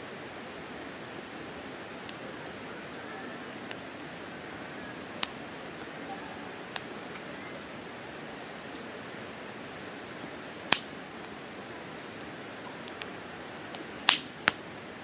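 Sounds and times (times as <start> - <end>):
campfire hissing: 0.0 - 15.0
firewood crackling and popping: 9.8 - 15.0.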